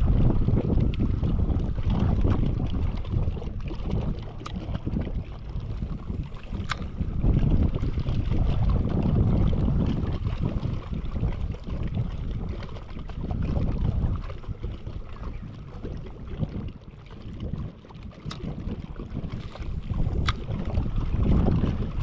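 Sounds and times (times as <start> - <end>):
wind buffeting microphone: 0.0 - 22.0
sharp click: 6.5 - 6.9.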